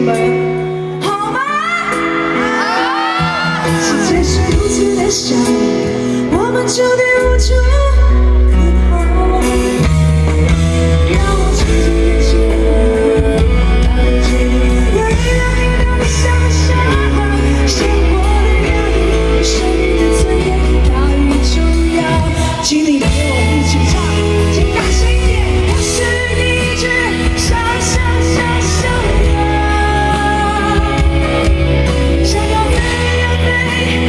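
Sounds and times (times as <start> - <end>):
live pop-rock band: 0.0 - 34.0
person singing: 0.0 - 34.0
heavy bass line: 8.8 - 34.0.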